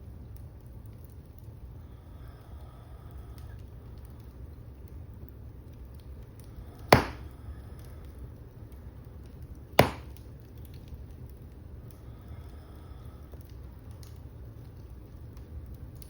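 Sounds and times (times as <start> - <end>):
wood fire burning: 0.0 - 16.0
logs popping: 6.8 - 7.4, 9.5 - 11.0.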